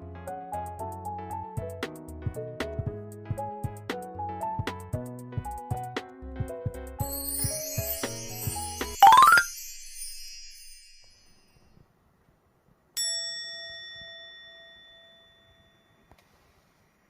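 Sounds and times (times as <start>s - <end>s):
bright chime ringing: 8.9s - 11.5s.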